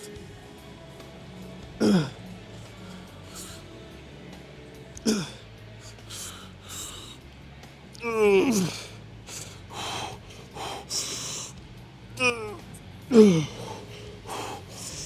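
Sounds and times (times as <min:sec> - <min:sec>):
man groaning sigh: 0:01.8 - 0:02.2, 0:05.0 - 0:07.0, 0:08.0 - 0:08.9, 0:12.2 - 0:15.0
man breathing hard: 0:01.8 - 0:03.7, 0:05.0 - 0:07.4, 0:08.0 - 0:11.6, 0:12.2 - 0:15.0.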